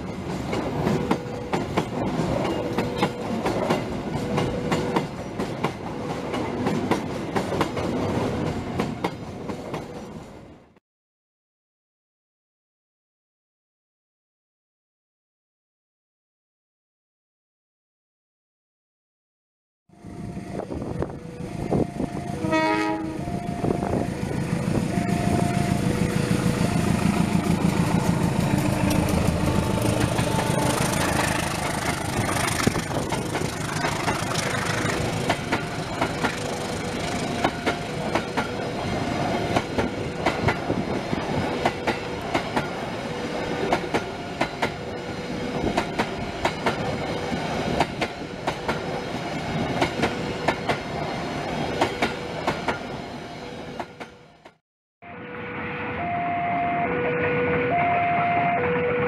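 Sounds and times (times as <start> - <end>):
diesel locomotive engine: 0.0 - 10.6, 19.9 - 59.0
wheels clacking over rail joints: 25.9 - 44.9.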